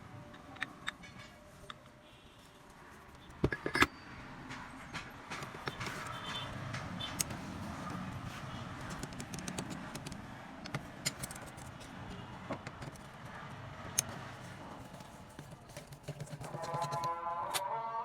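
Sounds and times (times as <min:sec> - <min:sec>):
taps and clicks on metal parts: 0:03.2 - 0:03.9, 0:04.5 - 0:08.1, 0:08.7 - 0:17.6.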